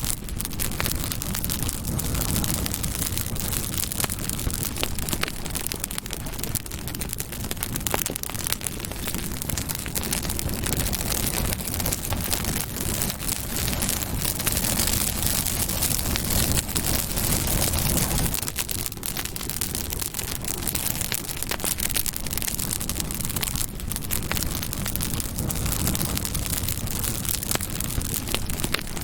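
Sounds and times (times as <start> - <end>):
crackles and pops of burning wood: 0.0 - 29.0
hiss of flame: 0.0 - 29.0.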